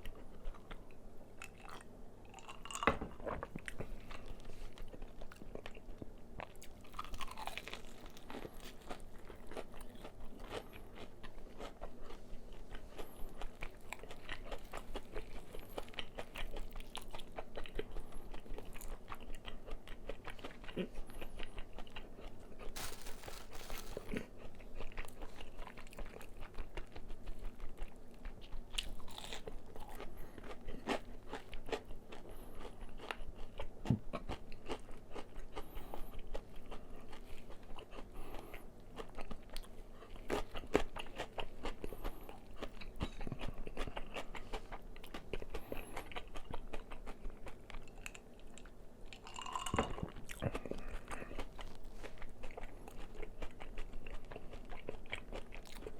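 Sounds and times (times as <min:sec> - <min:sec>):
crunching and chewing fried chicken: 0:00.0 - 0:55.9.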